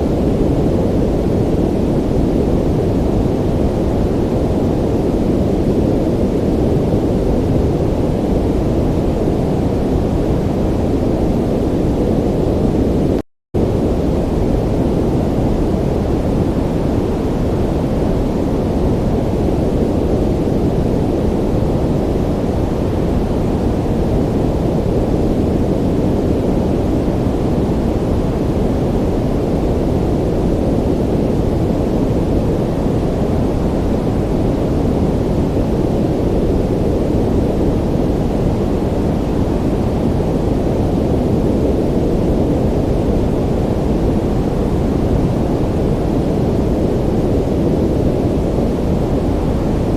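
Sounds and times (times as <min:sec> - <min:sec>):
ocean surf wash: 0:00.0 - 0:49.9.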